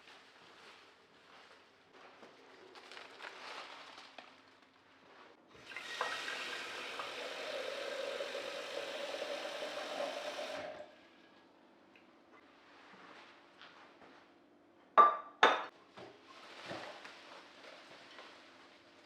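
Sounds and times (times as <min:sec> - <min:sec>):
soft handling sounds: 0:00.0 - 0:05.4
water tap running into sink: 0:05.6 - 0:11.0.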